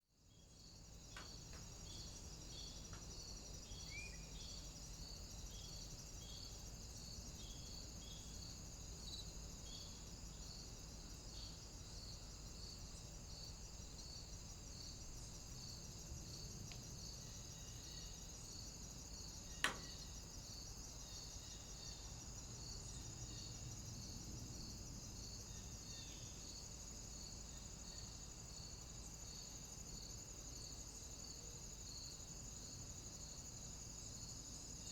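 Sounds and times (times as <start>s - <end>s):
cicadas chirring: 0.3s - 34.9s.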